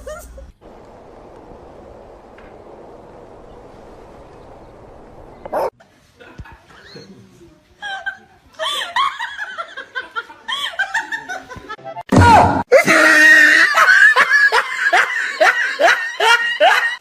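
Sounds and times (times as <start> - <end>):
laughter: 6.1 - 7.0, 7.8 - 11.8, 12.8 - 17.0.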